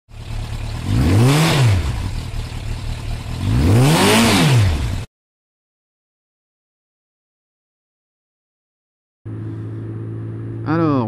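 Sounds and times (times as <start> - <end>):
motorcycle engine idling: 0.1 - 1.1, 1.7 - 3.5
motorcycle engine revving: 0.1 - 5.1, 9.3 - 11.0.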